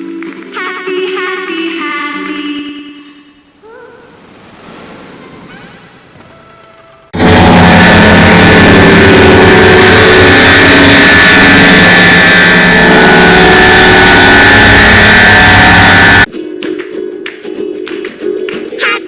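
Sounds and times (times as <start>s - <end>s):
loud distorted engine-like drone: 7.2s - 16.3s.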